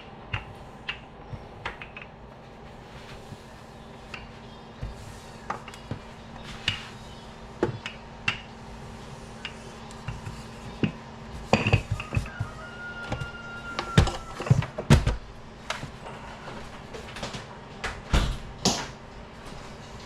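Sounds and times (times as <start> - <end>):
dishes and utensils clinking: 10.8 - 12.4.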